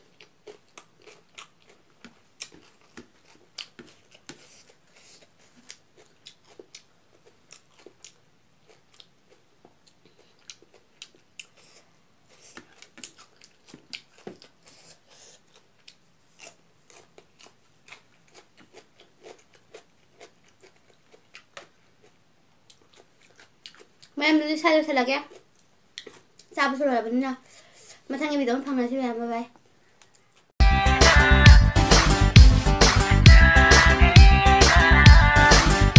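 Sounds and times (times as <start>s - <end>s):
person chewing food: 0.0s - 24.2s, 25.3s - 26.5s.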